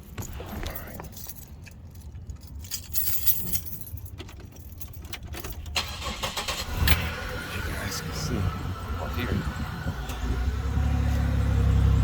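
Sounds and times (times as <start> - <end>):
car keys jangling: 0.0 - 7.0.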